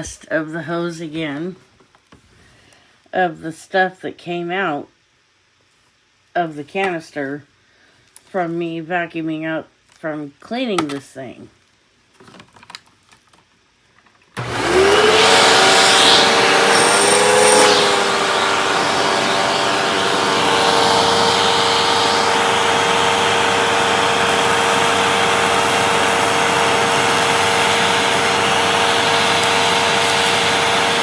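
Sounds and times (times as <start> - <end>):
air rushing through hose: 14.4 - 31.0
vacuum cleaner motor whining: 14.4 - 31.0.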